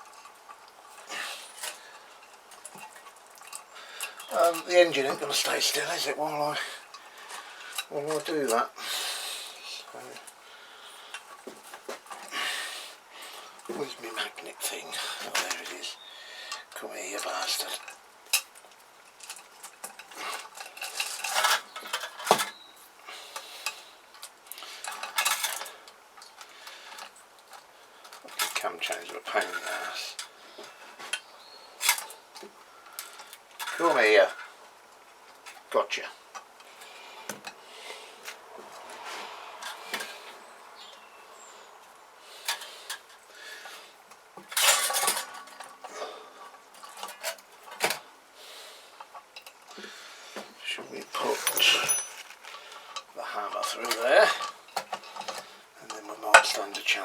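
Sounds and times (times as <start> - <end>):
metal clinking and scraping: 0.0 - 8.6, 13.3 - 34.6, 35.3 - 41.7, 42.3 - 48.1, 50.8 - 57.0
metal clatter: 44.4 - 45.9, 51.2 - 55.5.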